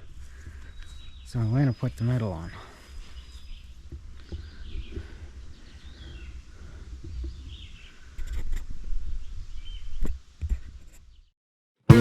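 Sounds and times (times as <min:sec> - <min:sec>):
birds chirping: 0:00.0 - 0:08.1.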